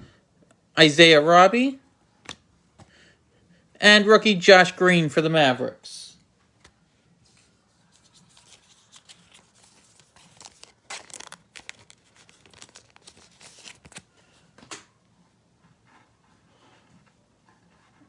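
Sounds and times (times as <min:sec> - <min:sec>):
plastic packaging crinkling and tearing: 0:08.0 - 0:14.1.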